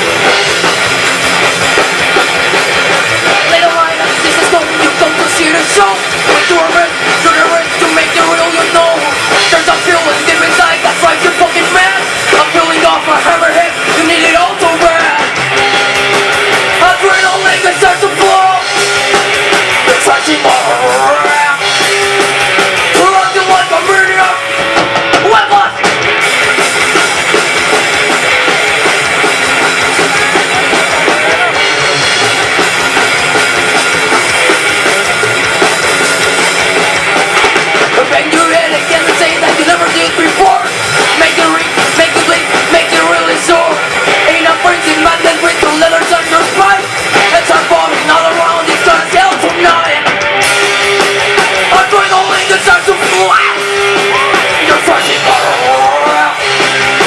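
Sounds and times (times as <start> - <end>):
drum kit: 0.0 - 57.0
guitars: 0.0 - 57.0.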